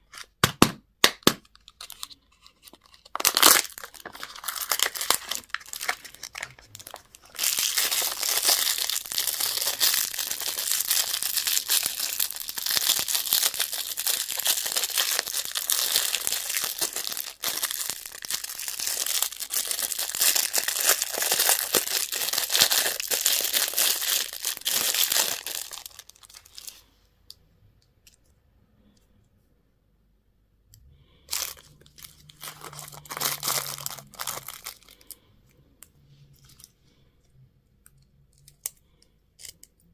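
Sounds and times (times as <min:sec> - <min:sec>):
wrapper crinkling and tearing: 0:01.3 - 0:26.8, 0:31.3 - 0:35.2.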